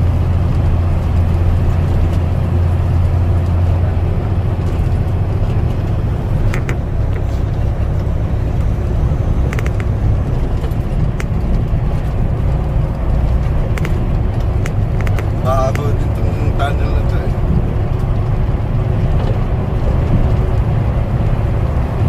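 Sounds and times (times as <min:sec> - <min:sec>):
truck engine and road drone: 0:00.0 - 0:22.0
short clicks and rattles: 0:09.4 - 0:18.3.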